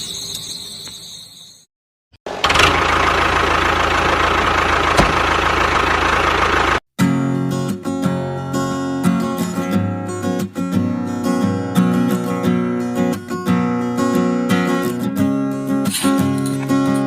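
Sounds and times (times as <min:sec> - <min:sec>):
strummed acoustic guitar music: 0:07.0 - 0:17.0.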